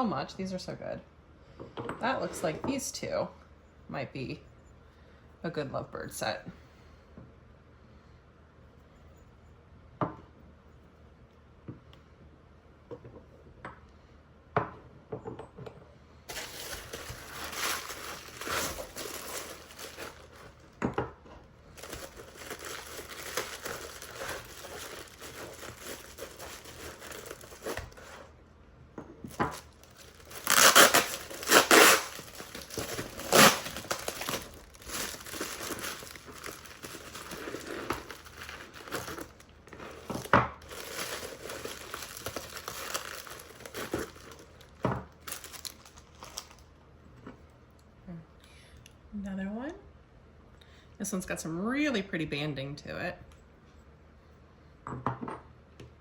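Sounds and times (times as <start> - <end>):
packaging crinkling and tearing: 16.3 - 20.8, 21.6 - 28.4, 29.3 - 46.7.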